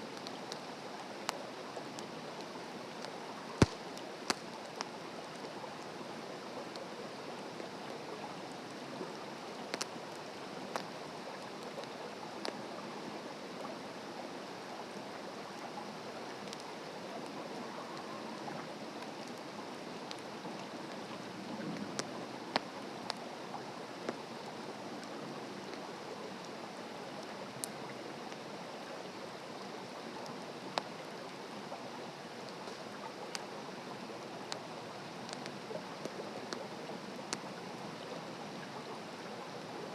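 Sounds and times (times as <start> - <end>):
fire crackling and popping: 0.0 - 5.9, 8.6 - 12.6, 16.3 - 18.2, 18.8 - 25.8, 32.4 - 37.6.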